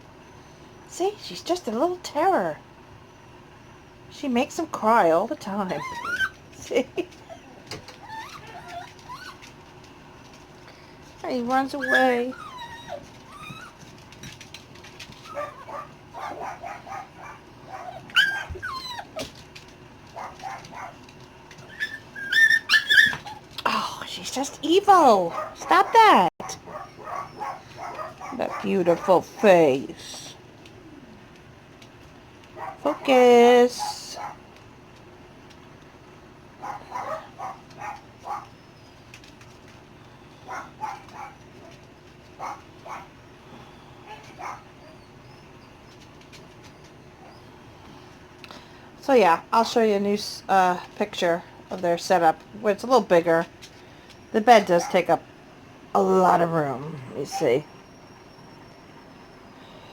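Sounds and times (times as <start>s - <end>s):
puppy crying: 5.6s - 6.4s, 7.1s - 9.5s, 11.7s - 13.9s, 15.2s - 19.3s, 21.6s - 23.5s, 25.3s - 29.6s, 36.6s - 39.0s, 40.4s - 41.7s, 44.0s - 46.0s
puppies yipping: 5.7s - 6.4s, 7.2s - 9.5s, 11.8s - 13.9s, 15.2s - 19.3s, 21.6s - 23.5s, 25.3s - 29.5s, 36.6s - 39.2s, 40.4s - 41.8s, 42.4s - 43.2s, 44.0s - 47.6s.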